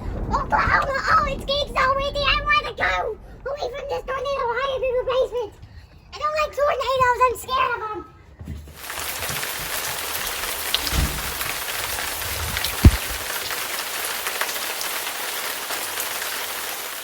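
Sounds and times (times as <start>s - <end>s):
steady rain falling: 0.0s - 5.4s, 8.8s - 17.0s
low thump: 10.8s - 11.6s, 12.3s - 13.3s.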